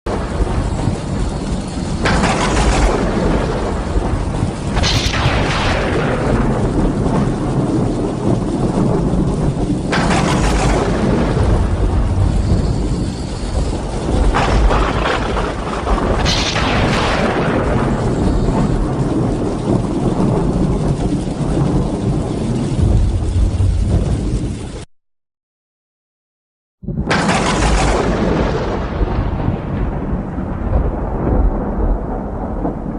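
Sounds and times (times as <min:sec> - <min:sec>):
deep rumble: 0:00.1 - 0:24.9, 0:26.9 - 0:32.9
heavy rain rushing: 0:00.1 - 0:24.9.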